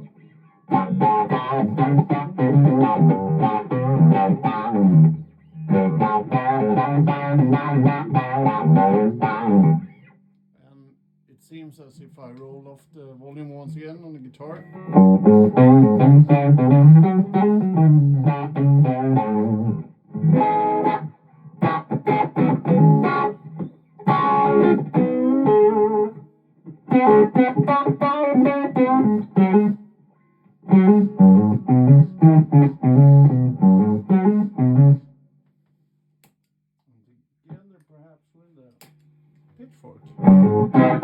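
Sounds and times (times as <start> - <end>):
electric guitar playing: 0.0 - 10.2, 14.5 - 29.9, 30.6 - 35.1, 40.1 - 41.0.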